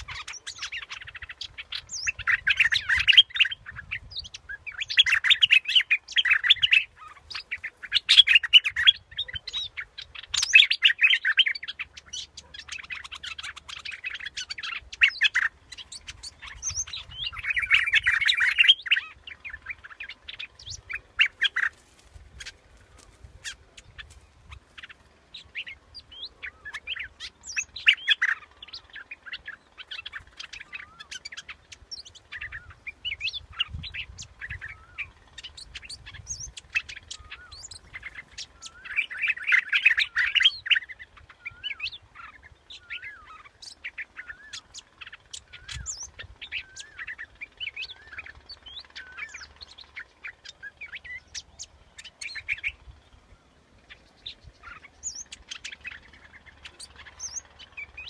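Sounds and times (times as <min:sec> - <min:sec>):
bulbuls chirping and singing: 0:00.0 - 0:58.0.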